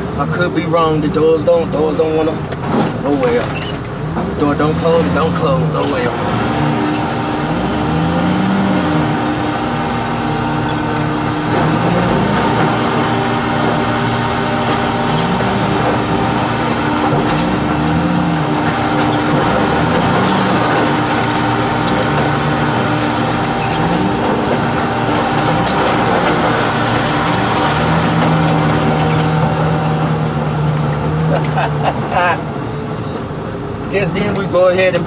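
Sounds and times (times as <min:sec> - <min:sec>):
diesel engine under load: 0:00.0 - 0:35.0.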